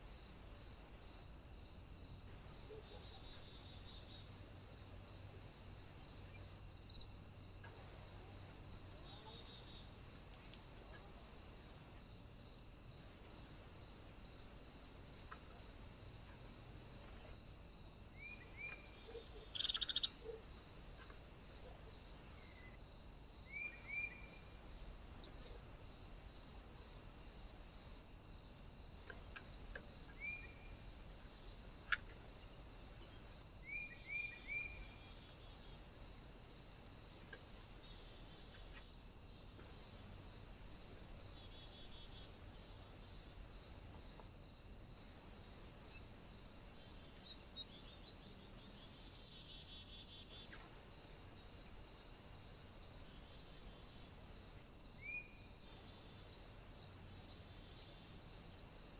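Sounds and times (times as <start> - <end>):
steady high hiss: 0.0 - 58.9
small birds chirping: 18.2 - 20.5.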